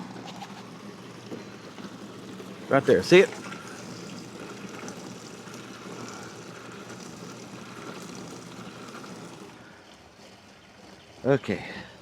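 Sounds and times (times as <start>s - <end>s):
water pump running: 0.0s - 12.0s
water pouring from hose into tank: 0.7s - 9.8s.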